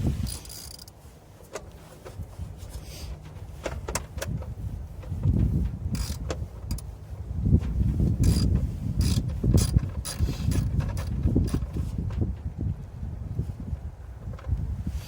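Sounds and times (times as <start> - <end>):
hand tools clicking and knocking: 0.3 - 1.8, 6.0 - 6.8, 8.2 - 11.8.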